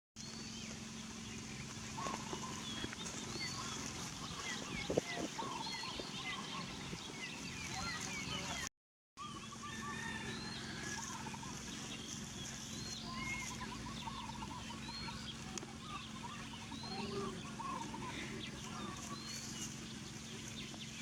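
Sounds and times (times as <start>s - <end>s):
bird calls and chirps: 0.2s - 21.0s
steady low hum: 9.2s - 21.0s.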